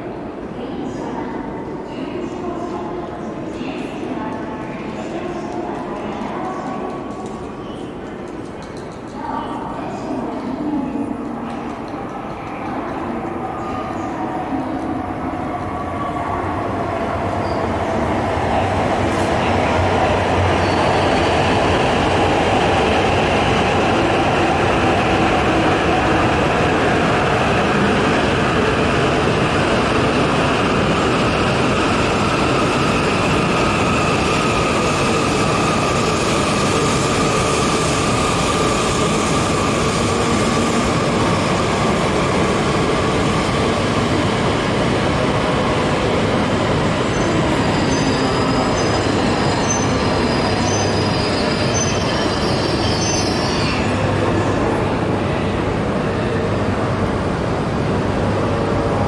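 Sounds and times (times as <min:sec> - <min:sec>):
train braking: 0:46.8 - 0:54.2.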